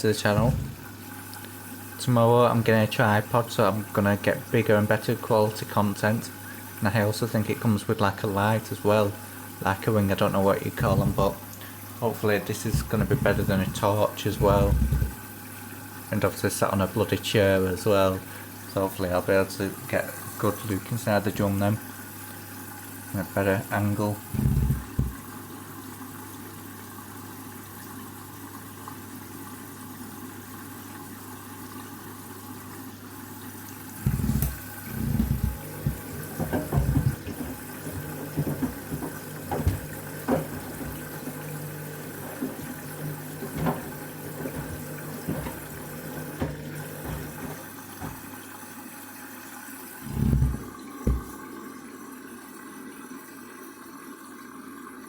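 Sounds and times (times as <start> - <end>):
washing machine drum motor: 0.0 - 1.0, 9.7 - 15.3, 24.2 - 25.4, 33.9 - 48.6, 50.0 - 51.4
water running into washing machine: 0.0 - 55.0
shoes thumping in drum: 34.1 - 41.2.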